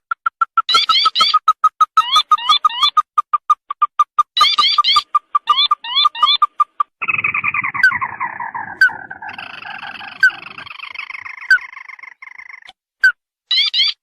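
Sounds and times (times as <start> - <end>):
descending rattling bird trill: 4.2 - 12.7.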